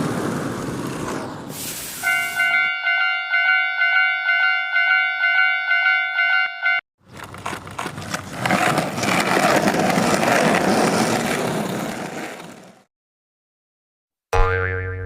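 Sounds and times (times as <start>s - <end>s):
cartoon boing: 14.3s - 15.0s.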